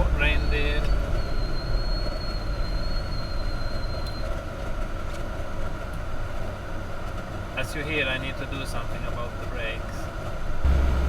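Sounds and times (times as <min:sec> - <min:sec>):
car brakes squealing: 0:00.0 - 0:04.4
car road and engine noise: 0:00.0 - 0:11.0.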